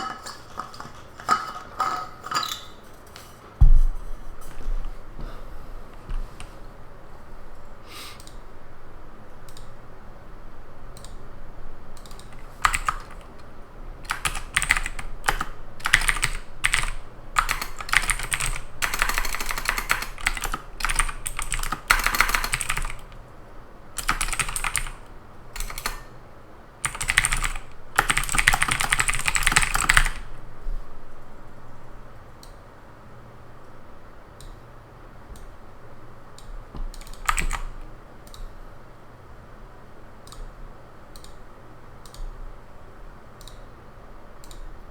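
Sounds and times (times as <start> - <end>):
typing on computer keyboard: 9.4 - 9.8, 12.0 - 23.2, 24.0 - 26.1, 26.8 - 30.3, 36.4 - 38.5.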